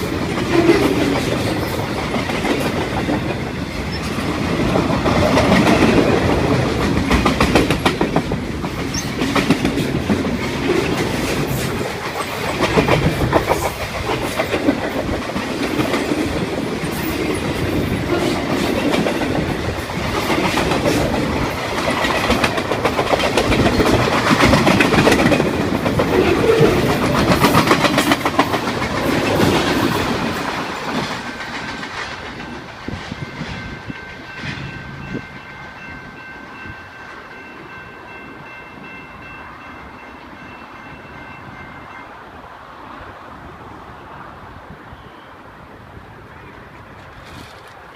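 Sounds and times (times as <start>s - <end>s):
train wheels clicking over rail joints: 0.0s - 35.0s, 46.9s - 47.9s.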